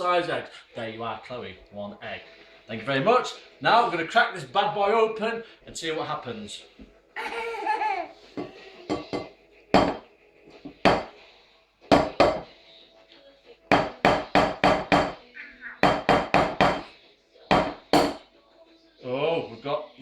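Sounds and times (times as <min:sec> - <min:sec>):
knocks on an egg shell: 0:08.9 - 0:10.0.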